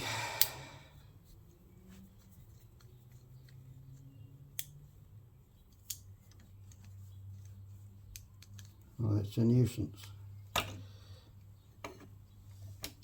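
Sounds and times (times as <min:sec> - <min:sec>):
small sharp handling clicks: 0:04.5 - 0:04.8, 0:05.7 - 0:08.9.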